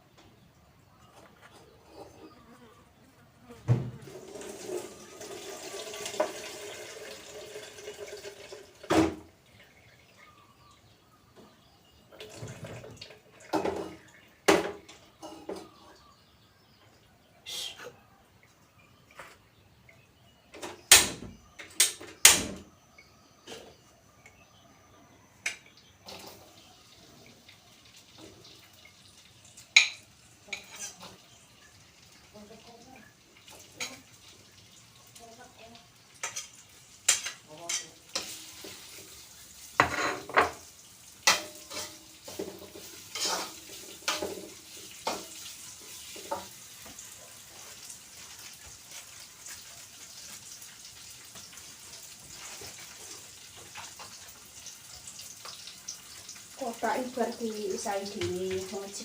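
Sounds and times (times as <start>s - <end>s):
water running from a tap: 4.0s - 10.2s, 12.1s - 14.4s, 25.8s - 59.0s
dishes knocking: 39.8s - 40.6s.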